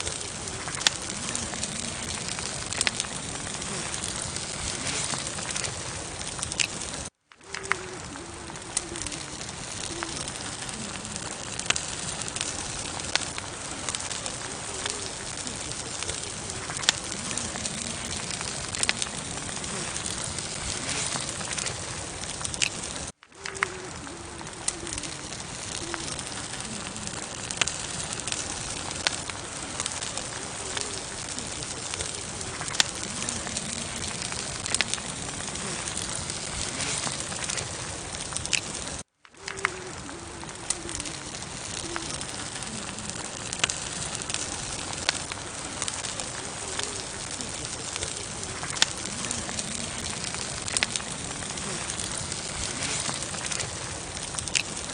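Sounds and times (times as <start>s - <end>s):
campfire crackling and popping: 0.0s - 54.9s
campfire hissing: 0.0s - 54.9s.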